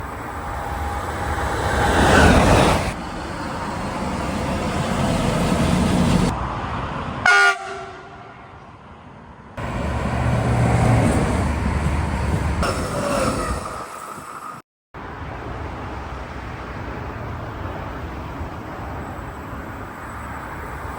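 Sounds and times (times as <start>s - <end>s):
electric trains passing at speed: 0.0s - 20.9s
locomotive horn blast: 7.2s - 8.3s.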